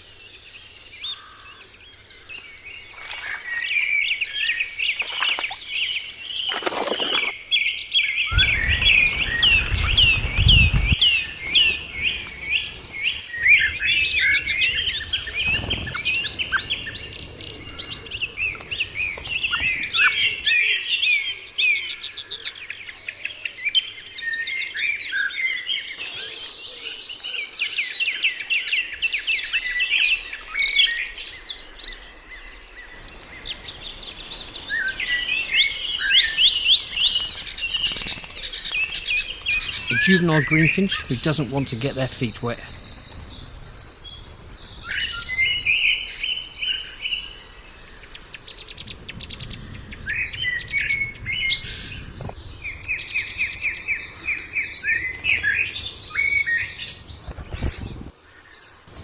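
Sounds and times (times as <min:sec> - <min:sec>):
small birds chirping: 0:00.0 - 0:59.0
low rumble: 0:08.3 - 0:20.5, 0:42.1 - 0:54.2.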